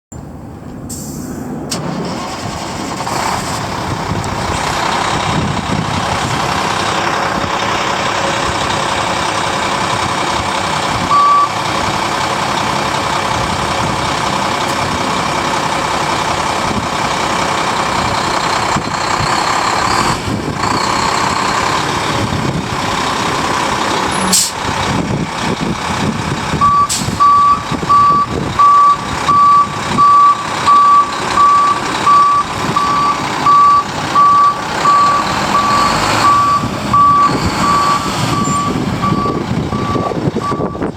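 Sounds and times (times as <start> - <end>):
dump truck engine running: 0.1 - 40.9
back-up alarm beeping: 11.1 - 11.6, 26.6 - 40.9.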